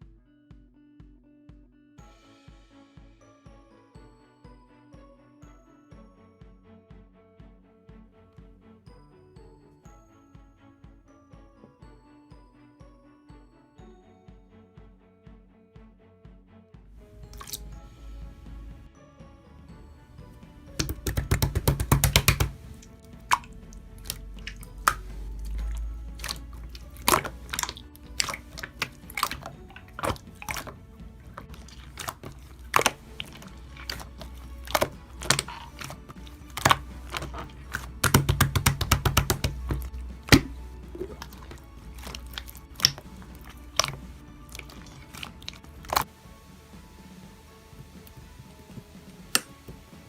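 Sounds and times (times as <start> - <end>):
quiet background music: 0.0 - 50.0
slime squeezed by hand: 17.2 - 18.2, 20.8 - 46.1.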